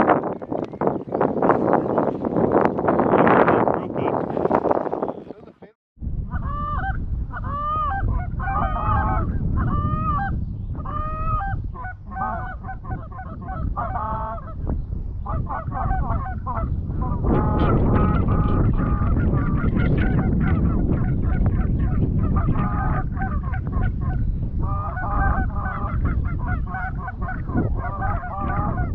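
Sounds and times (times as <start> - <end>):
geese honking: 6.3 - 14.6, 15.3 - 28.9.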